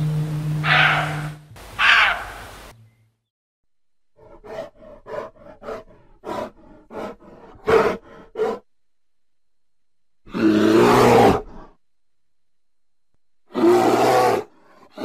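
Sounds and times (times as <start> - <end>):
bear grunting: 0.6 - 2.3, 4.1 - 8.7, 10.2 - 11.8, 13.5 - 15.0
long loud bear call: 0.6 - 2.5, 13.5 - 15.0.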